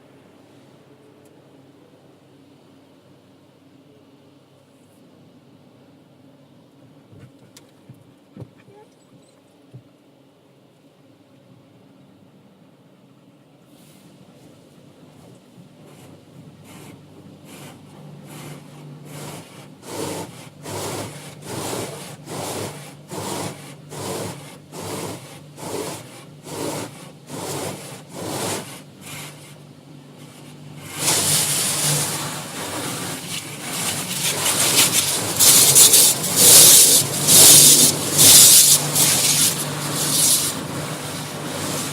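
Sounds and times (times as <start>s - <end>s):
car wash brushes swishing: 15.8s - 41.9s
hissing water spray: 17.5s - 29.6s, 30.2s - 41.9s.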